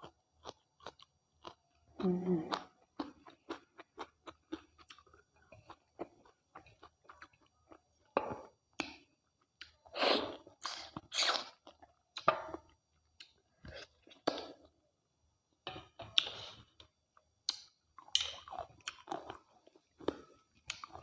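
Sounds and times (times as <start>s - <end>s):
close chewing mouth sounds: 0.0s - 8.1s, 17.5s - 21.0s.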